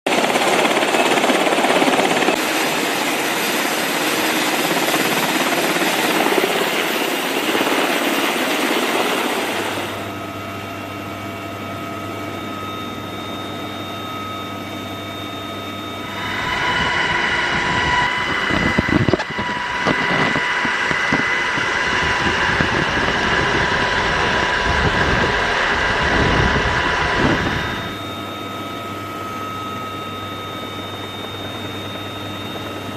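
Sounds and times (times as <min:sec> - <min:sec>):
helicopter turbine whine: 0:00.1 - 0:32.9.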